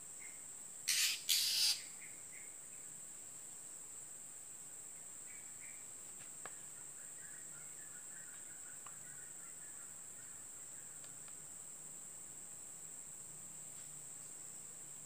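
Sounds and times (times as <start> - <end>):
insects droning: 0.0 - 15.0
faint bird twittering: 0.2 - 2.9.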